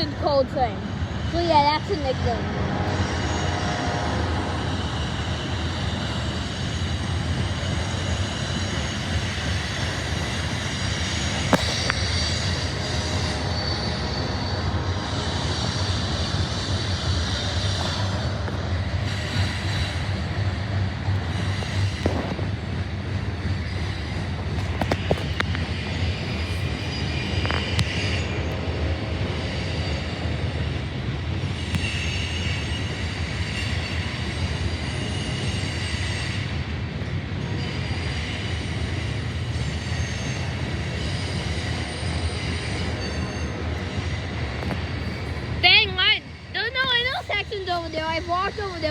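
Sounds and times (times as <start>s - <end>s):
freight train cars rumbling: 0.0s - 48.9s
high wheel squeal: 2.9s - 48.9s.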